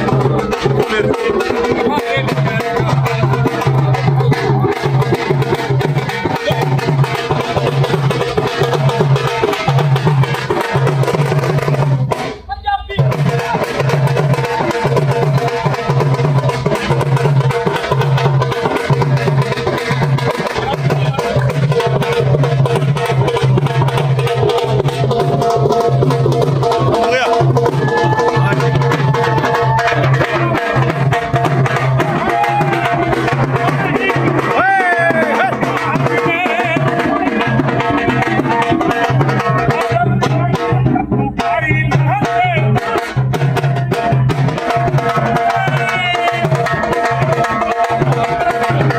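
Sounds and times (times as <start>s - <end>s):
rapid drum strokes: 0.0s - 48.9s.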